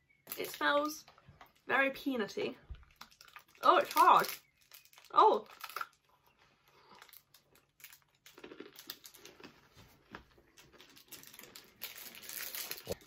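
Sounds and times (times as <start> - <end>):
chewing and crunching nougat: 2.8 - 13.0.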